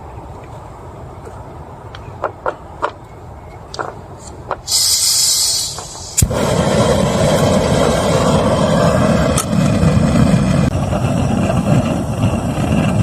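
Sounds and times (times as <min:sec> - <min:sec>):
sharp crack: 0:03.7 - 0:13.0
short hiss: 0:04.2 - 0:07.5.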